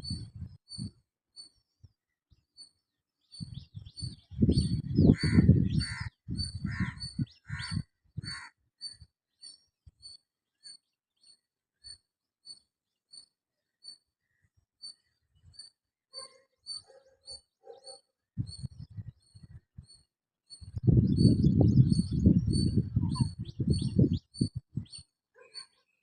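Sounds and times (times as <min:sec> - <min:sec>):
robin chirping: 0:02.6 - 0:26.0.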